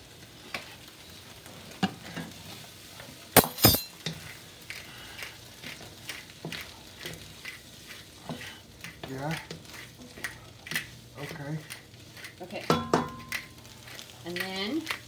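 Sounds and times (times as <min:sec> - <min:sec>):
onions sizzling in a pan: 0:00.0 - 0:03.0, 0:04.5 - 0:15.0
utensils and dishes clinking: 0:03.4 - 0:03.9.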